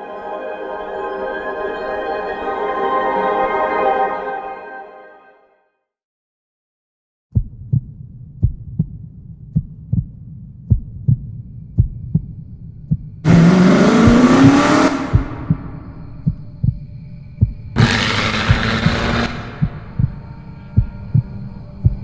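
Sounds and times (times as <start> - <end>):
double-thump heartbeat: 7.4 - 17.8, 19.6 - 22.0
racing car engine accelerating: 13.3 - 16.3, 17.8 - 20.0.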